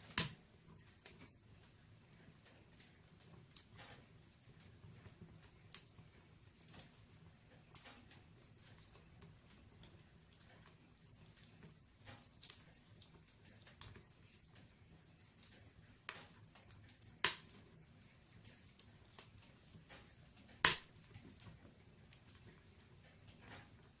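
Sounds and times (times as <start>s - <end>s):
firewood crackling and popping: 0.0s - 24.0s
loud sharp pops: 20.6s - 20.9s.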